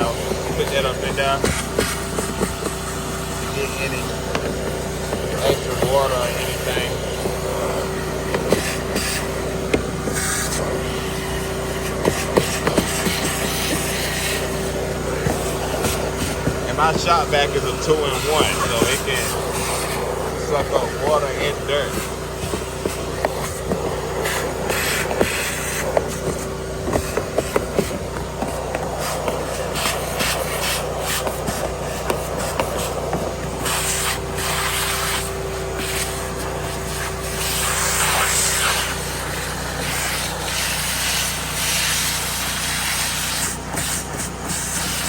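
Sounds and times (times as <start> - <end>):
shop vacuum whining: 0.0 - 45.0
nozzle knocking on surfaces: 1.4 - 3.0, 18.4 - 33.6.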